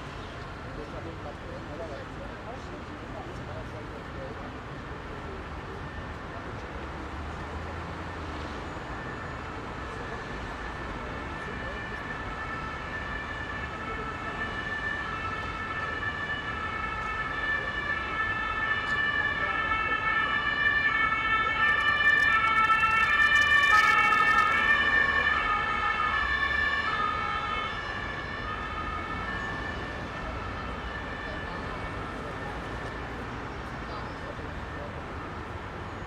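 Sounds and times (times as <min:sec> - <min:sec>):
road traffic noise: 0:00.0 - 0:36.0
ambulance siren two-tone: 0:07.7 - 0:33.2.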